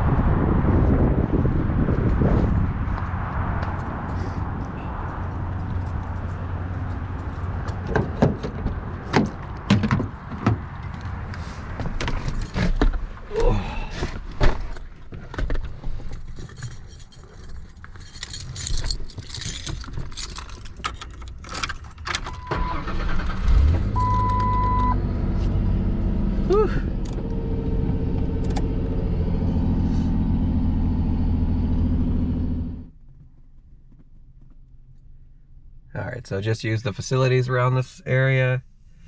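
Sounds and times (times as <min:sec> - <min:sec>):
vehicle engine running: 0:00.8 - 0:08.0, 0:24.0 - 0:33.0
short electronic beep: 0:24.0 - 0:25.0.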